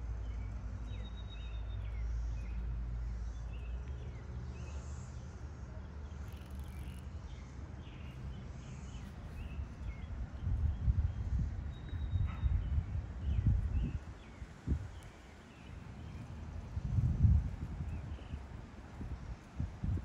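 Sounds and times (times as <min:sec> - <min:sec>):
wind on the microphone: 0:09.1 - 0:20.0.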